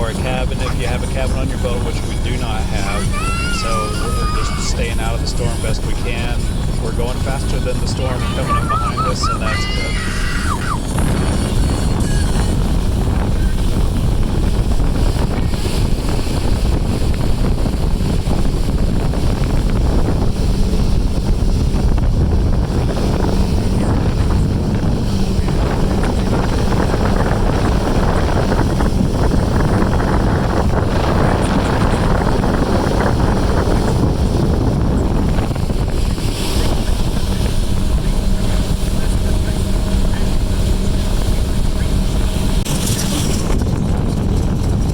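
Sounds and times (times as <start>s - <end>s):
motorboat engine drone: 0.0s - 44.9s
wind buffeting microphone: 0.0s - 44.9s.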